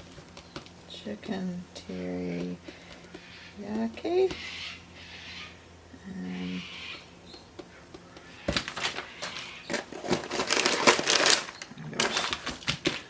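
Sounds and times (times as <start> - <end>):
plastic bag crinkling: 8.6 - 13.0.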